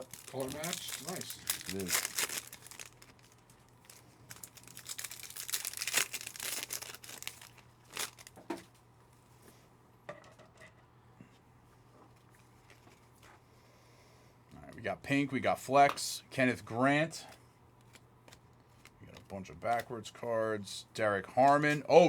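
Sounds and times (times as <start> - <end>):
card pack wrapper crinkling and tearing: 0.0 - 8.4.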